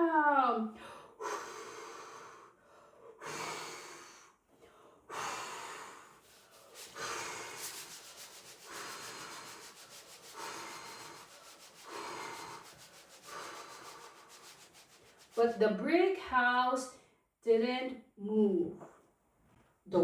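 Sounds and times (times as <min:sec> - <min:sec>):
person huffing and puffing: 0:05.1 - 0:15.4.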